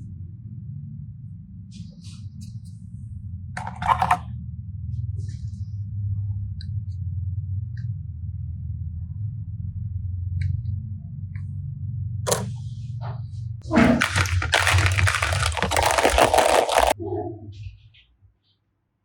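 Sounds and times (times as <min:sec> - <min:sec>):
plastic bag crinkling: 0:13.8 - 0:17.0.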